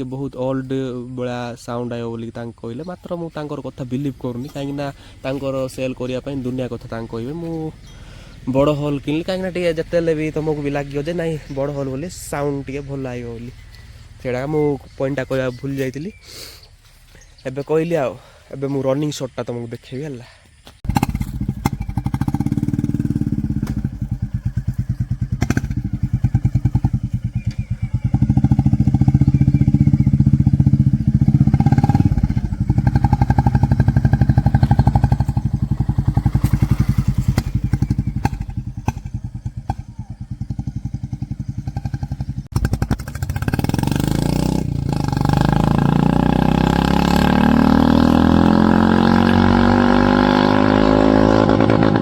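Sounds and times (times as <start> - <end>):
motorcycle engine deep pulsing thump: 20.8 - 52.0.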